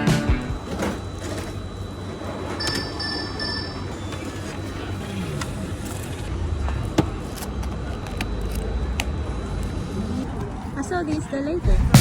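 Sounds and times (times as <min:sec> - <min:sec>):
background ambience: 0:11.6 - 0:12.0.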